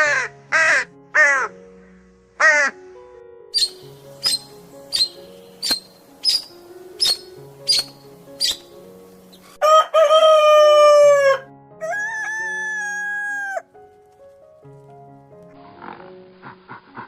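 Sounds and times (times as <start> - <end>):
soft background music: 0.0 - 17.0
rooster crowing: 9.6 - 13.7.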